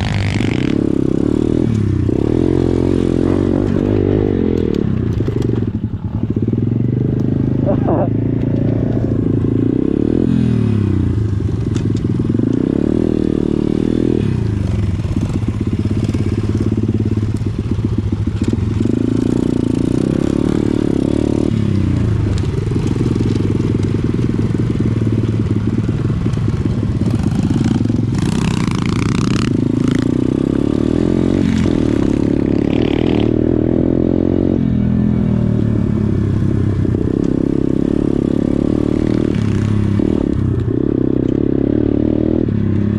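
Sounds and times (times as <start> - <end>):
motorbike engine revving: 0.0 - 42.9.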